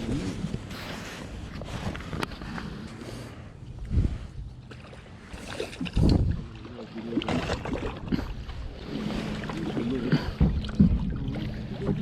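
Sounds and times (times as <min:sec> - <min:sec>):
wind gusting on microphone: 0:03.8 - 0:04.6, 0:05.8 - 0:06.5.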